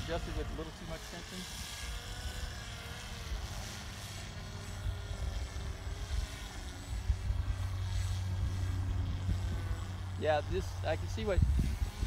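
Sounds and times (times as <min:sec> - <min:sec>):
faint motor and propeller whine: 0:00.0 - 0:12.0
wind buffeting microphone: 0:04.8 - 0:12.0.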